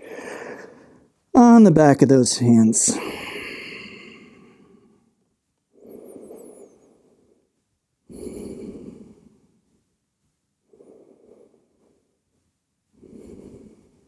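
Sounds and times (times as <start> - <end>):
person breathing deeply: 0.0 - 1.1, 3.0 - 5.0.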